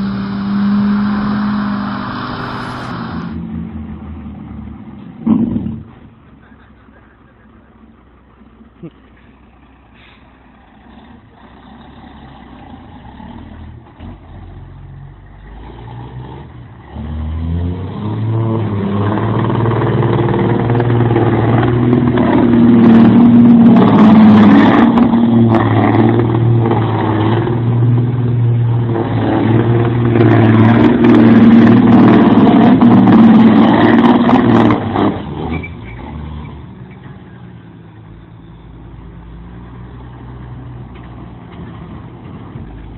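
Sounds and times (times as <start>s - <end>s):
heavy truck engine working hard: 0.0s - 42.9s.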